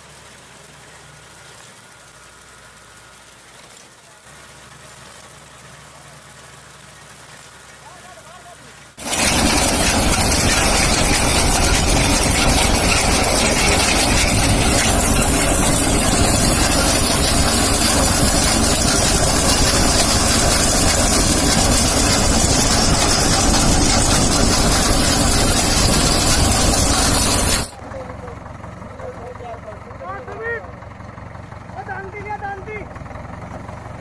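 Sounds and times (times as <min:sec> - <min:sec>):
loud even noise: 0:09.0 - 0:27.8
tractor engine running: 0:09.0 - 0:34.0.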